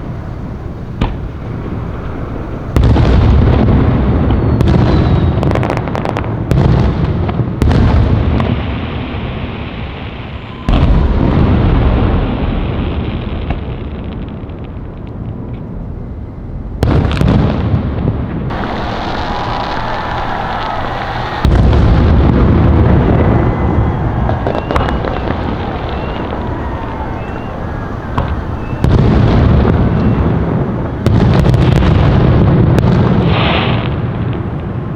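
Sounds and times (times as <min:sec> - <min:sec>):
fireworks booming: 0:00.0 - 0:15.9, 0:16.7 - 0:34.9
fireworks crackling pops: 0:18.5 - 0:34.9.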